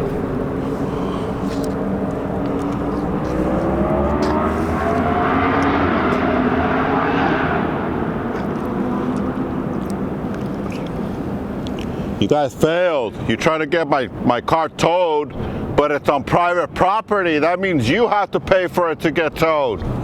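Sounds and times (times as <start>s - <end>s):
vehicle engine accelerating: 0.0s - 11.6s.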